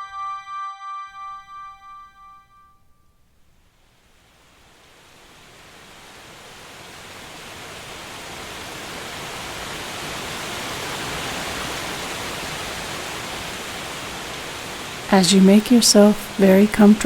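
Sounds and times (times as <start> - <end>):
waterfall rushing: 4.5 - 17.0.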